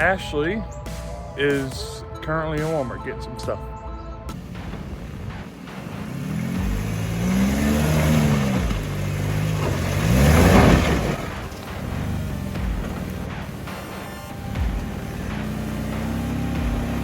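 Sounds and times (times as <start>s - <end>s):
vehicle engine revving: 4.3s - 17.0s.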